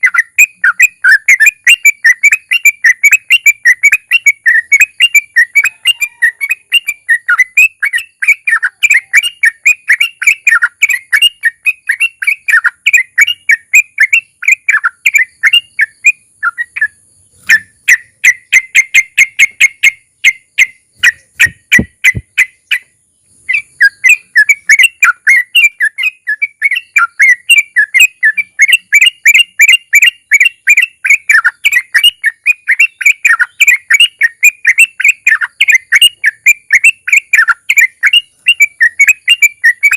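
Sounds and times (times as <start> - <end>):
bird singing chattering trills: 0.0 - 39.9.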